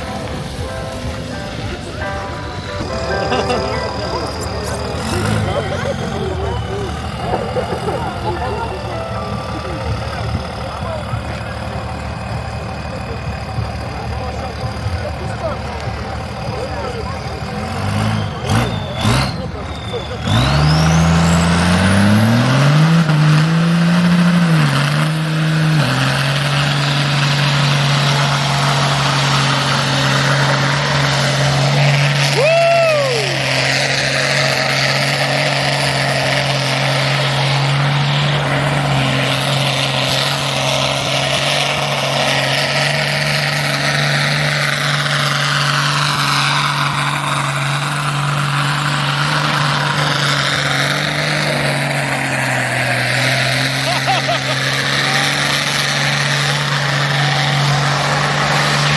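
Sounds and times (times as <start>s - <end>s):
car engine running: 0.0s - 58.9s
short falling tone: 0.7s - 11.1s.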